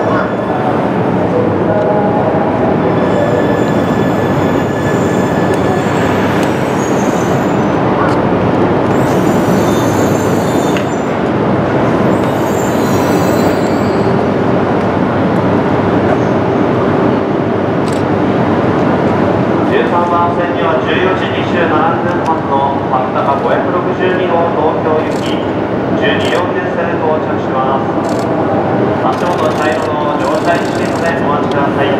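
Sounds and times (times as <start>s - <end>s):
faint high-pitched wheel squeal: 12.2s - 14.1s
train wheels rumbling on rails: 27.7s - 31.9s.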